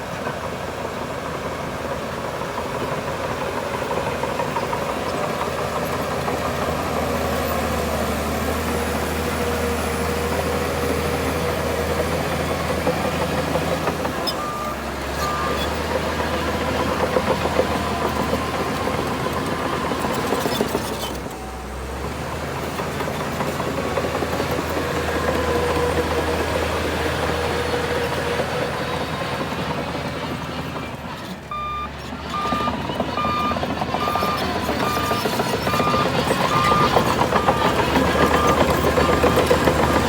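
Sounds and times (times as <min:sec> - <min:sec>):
heavy machinery diesel engine: 0:00.0 - 0:40.0
reversing alarm beeping: 0:14.3 - 0:15.7, 0:31.5 - 0:40.0.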